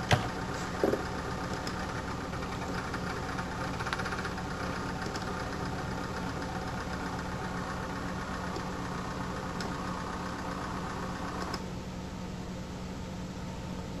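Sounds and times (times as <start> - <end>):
cooling fan clattering: 0.0 - 12.2
steady fan whir: 0.0 - 14.0.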